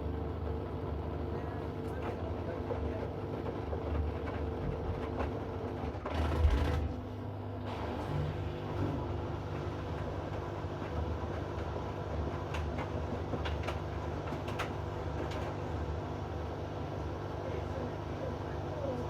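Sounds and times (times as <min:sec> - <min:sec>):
washing machine humming: 0:00.0 - 0:19.0.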